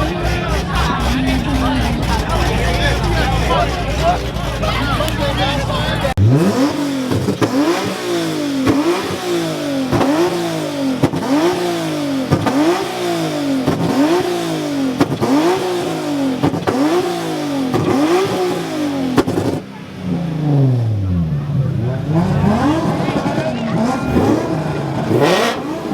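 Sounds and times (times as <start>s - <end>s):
car engine revving: 0.0s - 25.9s.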